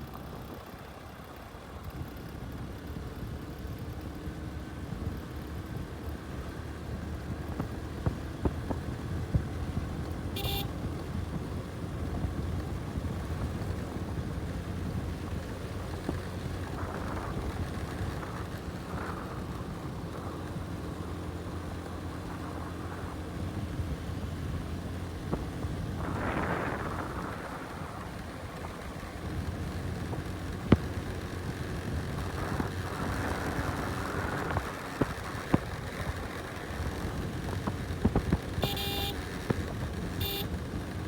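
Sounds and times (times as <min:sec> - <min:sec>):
motorcycle engine running: 0:00.2 - 0:41.0
wind rumbling on microphone: 0:04.7 - 0:38.8.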